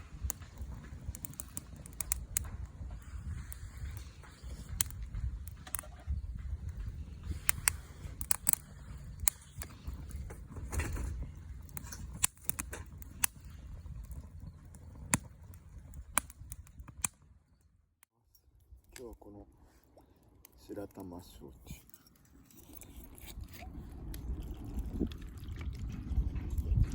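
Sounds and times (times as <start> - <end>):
campfire crackling: 0.0 - 26.9
low rumble: 22.8 - 26.9.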